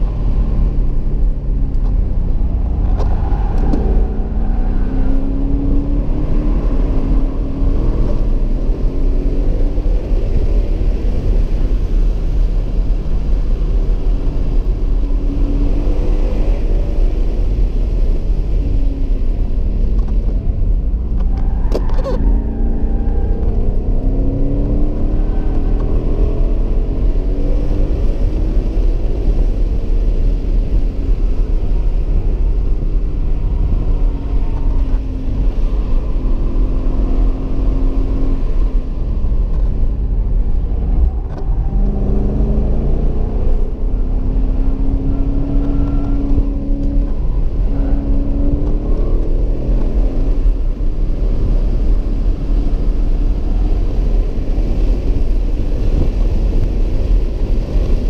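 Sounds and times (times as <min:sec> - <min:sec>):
car engine revving: 0:20.0 - 0:58.0.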